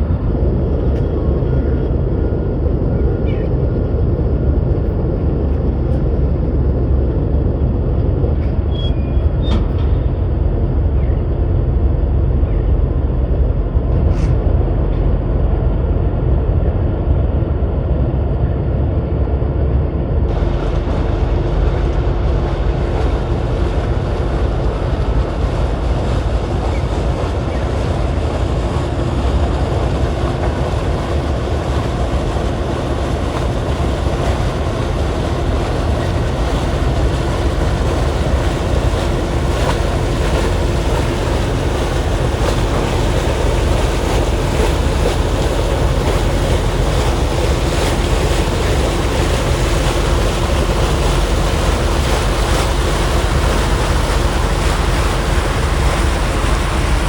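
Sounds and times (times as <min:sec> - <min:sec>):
steady low hum: 0:00.0 - 0:57.0
wind buffeting microphone: 0:00.0 - 0:57.0
surf washing: 0:20.3 - 0:57.0.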